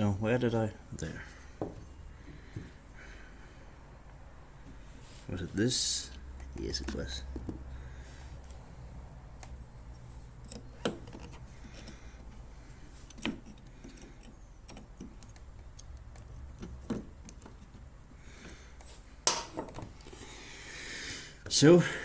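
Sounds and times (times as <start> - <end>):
metal parts clicking and tapping: 10.4 - 12.3, 13.0 - 17.9.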